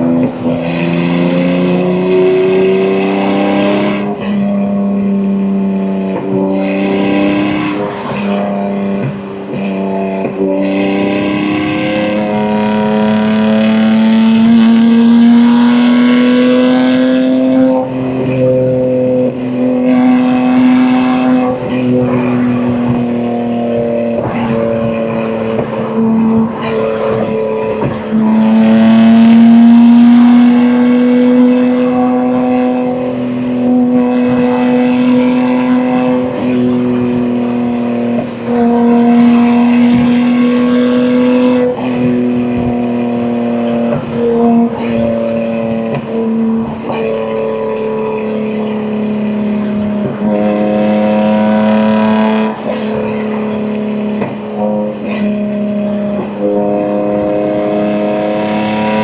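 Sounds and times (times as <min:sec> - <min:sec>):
car engine exhaust: 0:00.0 - 0:59.0.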